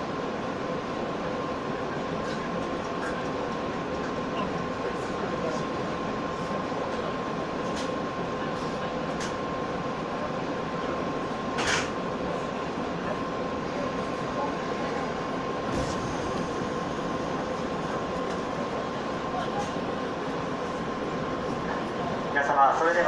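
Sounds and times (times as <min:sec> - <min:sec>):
train rumbling: 0:00.0 - 0:23.0
loud burst of noise: 0:15.0 - 0:19.4.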